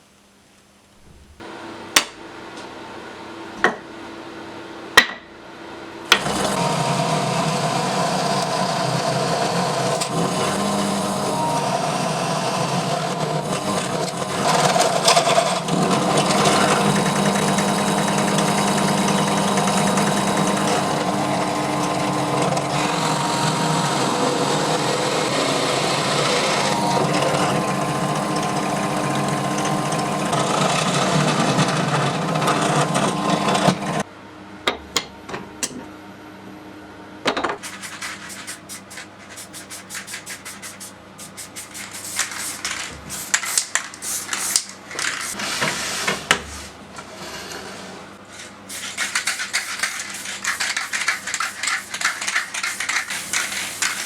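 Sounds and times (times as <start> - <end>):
power tool running: 6.1 - 34.0.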